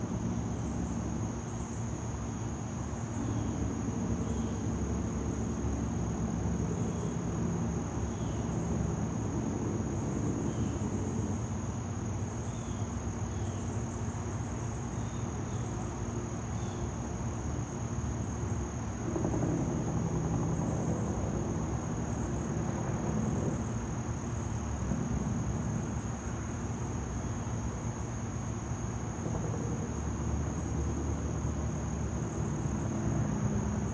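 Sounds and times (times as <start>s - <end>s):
crickets trilling: 0.0s - 33.9s
low steady rumble: 18.3s - 33.9s.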